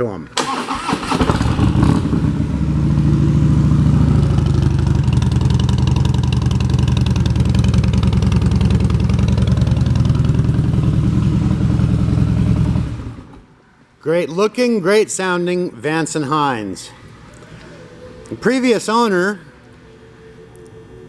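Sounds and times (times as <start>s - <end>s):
motorcycle engine idling: 0.5s - 13.4s.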